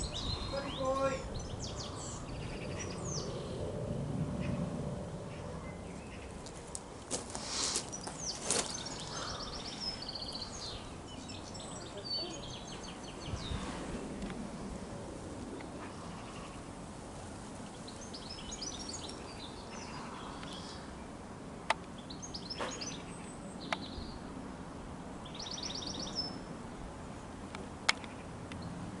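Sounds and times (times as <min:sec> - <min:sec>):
low background rumble: 0:00.0 - 0:07.1
songbirds chirping and trilling: 0:00.0 - 0:29.0.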